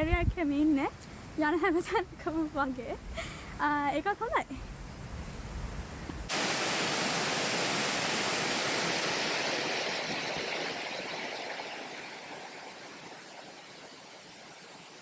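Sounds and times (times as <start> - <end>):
waterfall rushing water: 6.3 - 15.0.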